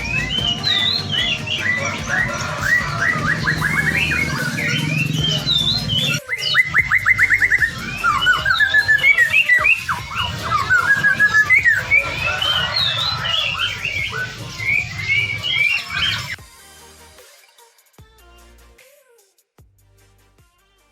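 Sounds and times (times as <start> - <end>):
songbirds trilling and chirping: 0.0 - 16.4.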